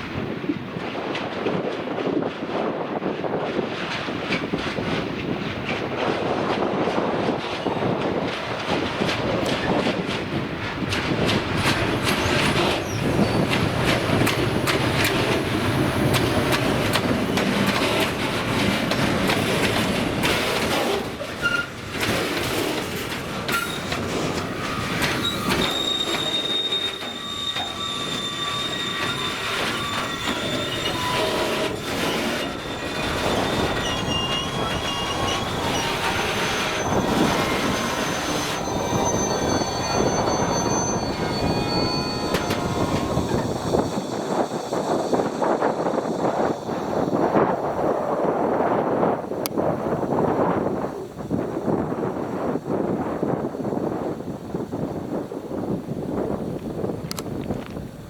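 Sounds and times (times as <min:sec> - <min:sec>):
train rumble: 0:00.0 - 0:58.0
train wheels clicking over rail joints: 0:00.1 - 0:50.8
high wheel squeals: 0:11.3 - 0:22.2, 0:23.4 - 0:48.7.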